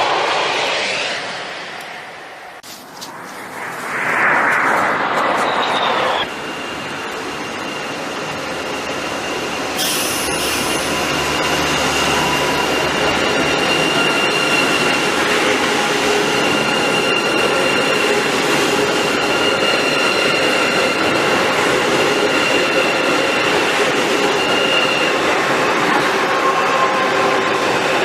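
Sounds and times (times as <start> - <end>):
train running on track: 0.0 - 28.0
thin high whine: 0.3 - 18.4.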